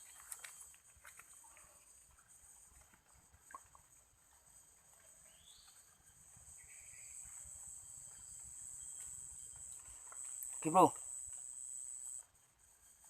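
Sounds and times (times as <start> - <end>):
high-pitched insect drone: 6.5 - 13.0.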